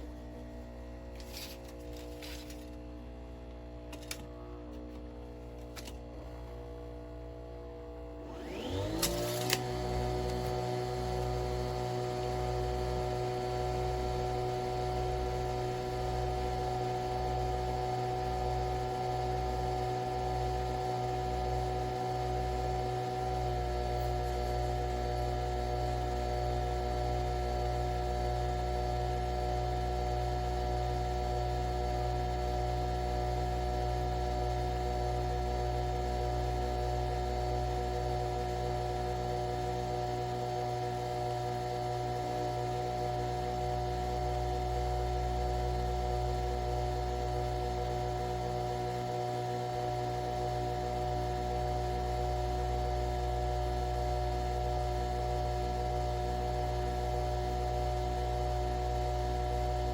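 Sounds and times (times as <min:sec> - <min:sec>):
coffee machine motor whirring: 0:00.0 - 0:30.6.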